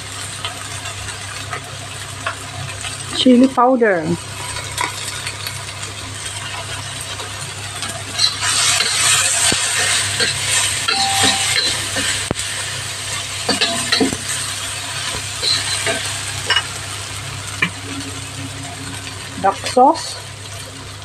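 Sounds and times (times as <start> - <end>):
onions sizzling in oil: 0.0 - 21.0
metal spatula scraping a pan: 8.1 - 12.2, 13.1 - 16.7.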